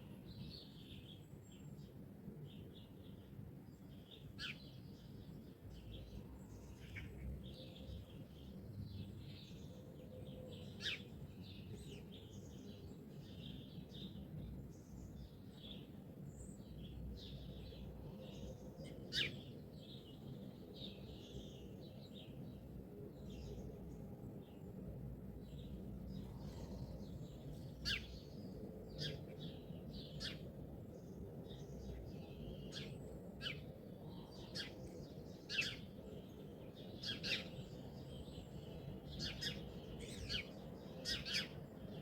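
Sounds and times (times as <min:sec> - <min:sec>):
songbirds chirping and singing: 0:00.2 - 0:42.0.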